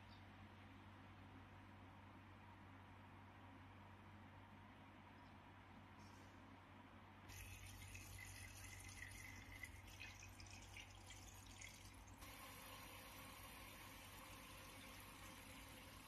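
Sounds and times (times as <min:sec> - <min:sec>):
faint steady hiss: 0:07.2 - 0:16.0.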